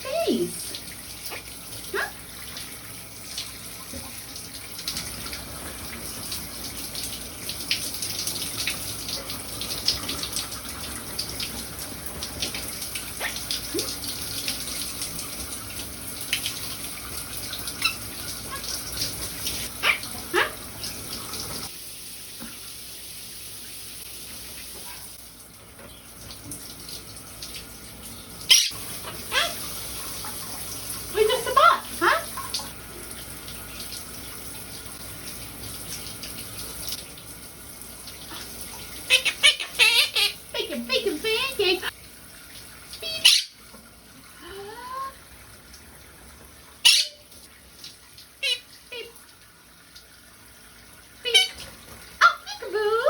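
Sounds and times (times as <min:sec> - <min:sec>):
shower spray running: 0:00.0 - 0:53.0
parrot chirping and squeaking: 0:17.8 - 0:18.6, 0:28.5 - 0:29.6, 0:39.1 - 0:40.4, 0:43.1 - 0:43.6, 0:46.8 - 0:47.3.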